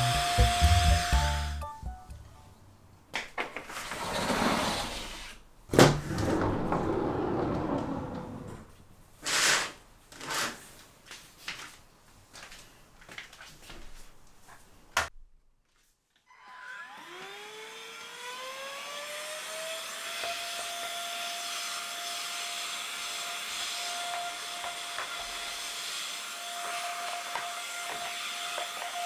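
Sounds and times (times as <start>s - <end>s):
sliding window scraping along track: 3.7s - 5.4s, 6.0s - 9.6s.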